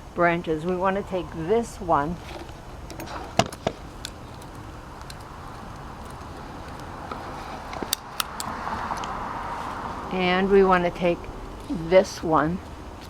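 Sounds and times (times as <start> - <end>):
distant road traffic hum: 0.0 - 13.0.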